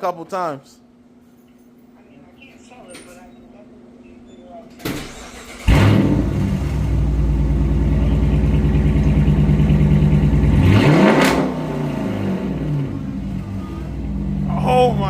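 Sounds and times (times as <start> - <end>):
loud car engine running: 5.6 - 15.0.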